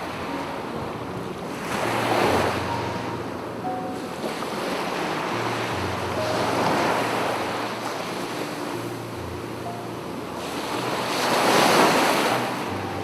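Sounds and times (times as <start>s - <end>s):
faint piano notes: 0.0s - 13.0s
sea waves breaking on beach: 0.0s - 13.0s.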